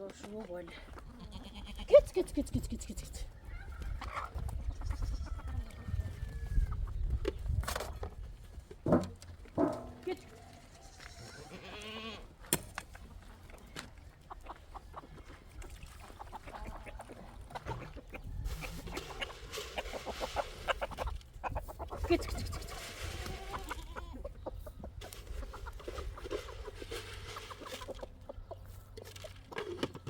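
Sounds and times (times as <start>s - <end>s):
chickens clucking: 2.3s - 11.7s, 12.9s - 30.0s.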